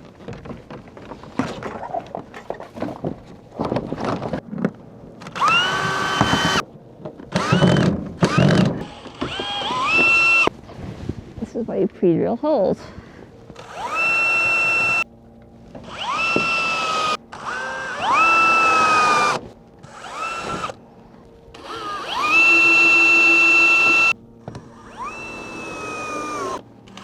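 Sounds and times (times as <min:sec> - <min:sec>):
power drill whining: 0:05.3 - 0:06.6, 0:07.3 - 0:10.5, 0:13.6 - 0:15.1, 0:15.8 - 0:20.8, 0:21.5 - 0:27.0.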